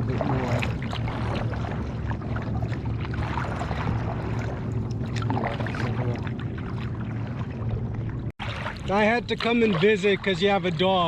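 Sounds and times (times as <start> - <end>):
paddle splashing in water: 0.0 - 11.0
steady low rumble: 0.0 - 11.0.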